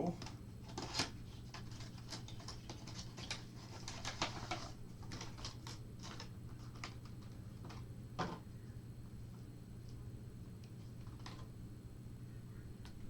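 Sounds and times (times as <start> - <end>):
plastic and cardboard crinkling: 0.2 - 8.4.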